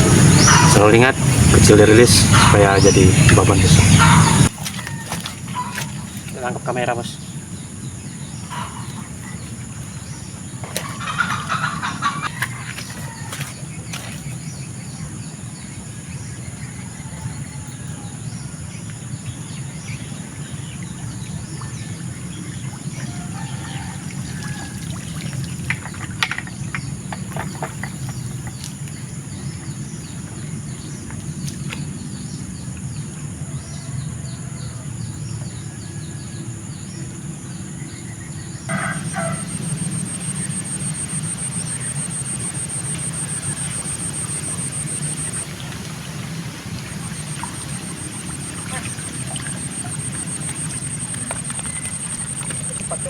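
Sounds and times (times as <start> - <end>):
chickens calling: 0.0 - 7.2, 8.4 - 10.0, 10.6 - 14.4, 38.7 - 53.0
birds calling: 0.0 - 33.1, 37.9 - 53.0.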